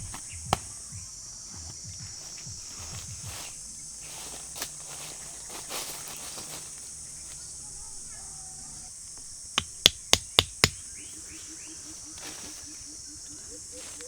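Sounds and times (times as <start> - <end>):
insects chorus: 0.0 - 14.0
sharp knocks: 9.6 - 10.8.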